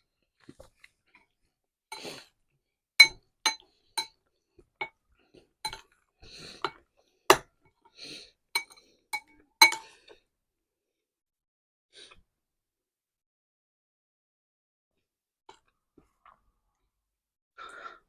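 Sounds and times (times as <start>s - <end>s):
metal cutlery tapping a dish: 8.6s - 9.8s.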